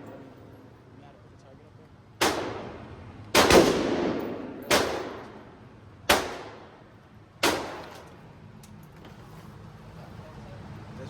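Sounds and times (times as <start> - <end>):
echoing gunshots: 2.2 - 6.8, 7.4 - 7.9.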